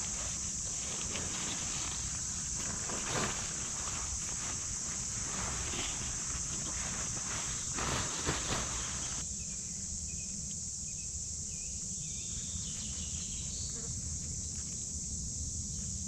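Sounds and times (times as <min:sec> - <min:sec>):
crunching footsteps: 0:00.0 - 0:09.2
steady high hiss: 0:00.0 - 0:13.8.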